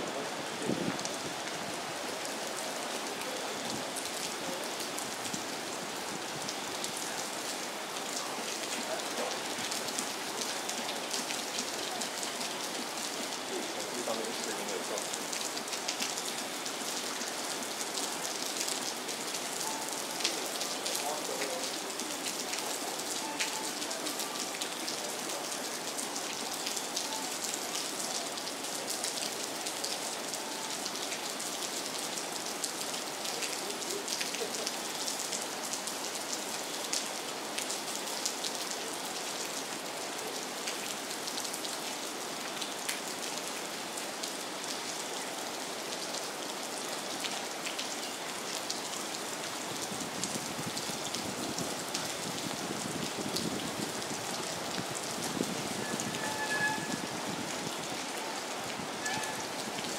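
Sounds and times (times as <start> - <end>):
rain falling on water: 0.0 - 59.9.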